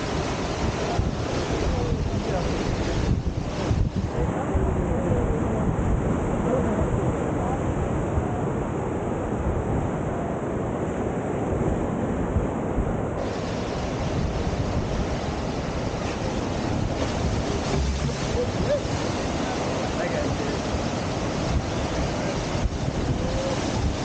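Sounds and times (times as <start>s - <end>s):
whitewater rushing: 0.0s - 7.1s, 13.2s - 24.0s
wind buffeting microphone: 0.0s - 24.0s.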